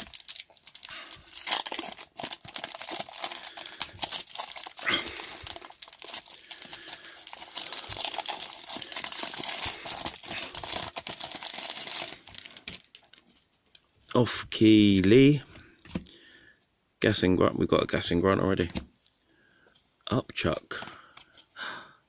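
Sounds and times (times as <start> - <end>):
wrapper tearing: 0.0 - 13.1
wrapper crinkling: 0.0 - 13.3.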